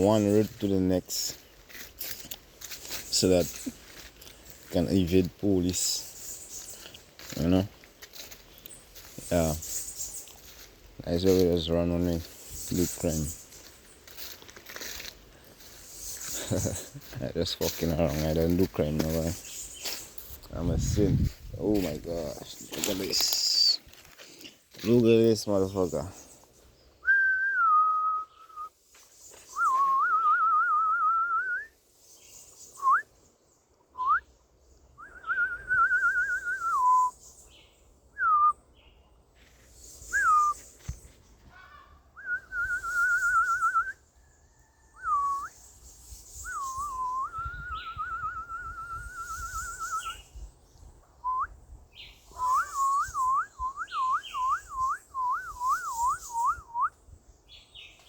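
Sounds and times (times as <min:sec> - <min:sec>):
person whistling a tune: 0:27.0 - 0:28.7, 0:29.6 - 0:31.7, 0:35.0 - 0:37.1, 0:42.2 - 0:44.0, 0:46.8 - 0:50.0, 0:52.4 - 0:56.9.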